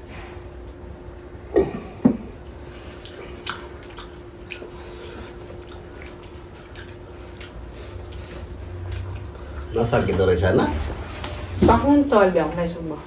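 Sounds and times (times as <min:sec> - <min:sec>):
faint steady hum: 0:00.0 - 0:13.0
chewing and biting meat: 0:02.9 - 0:09.7.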